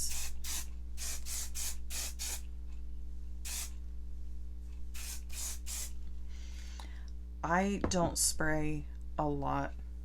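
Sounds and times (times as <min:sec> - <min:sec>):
aerosol hairspray spritzes: 0:00.0 - 0:02.4, 0:03.5 - 0:03.7, 0:05.0 - 0:05.9.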